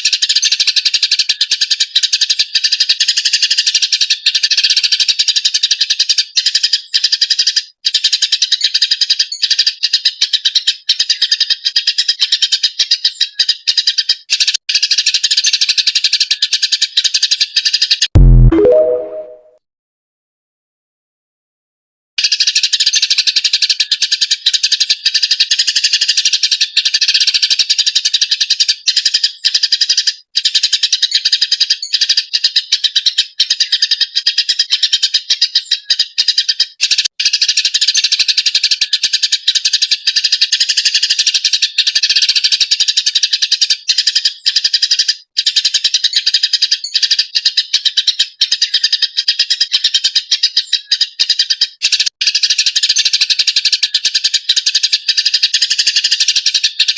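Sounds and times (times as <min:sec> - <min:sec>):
sparrow chirping: 0:00.1 - 0:18.0, 0:22.2 - 0:56.9.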